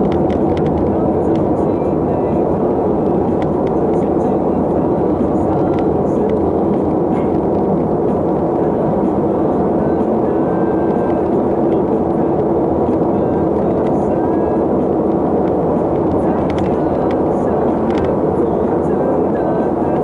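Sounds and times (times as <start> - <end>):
vehicle road and wind noise: 0.0 - 20.0.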